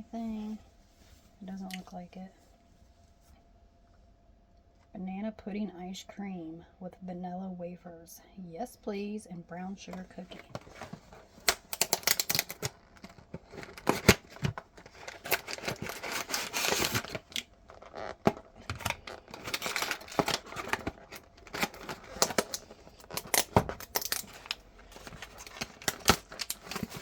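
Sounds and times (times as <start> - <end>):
packaging crinkling and tearing: 10.4 - 27.0.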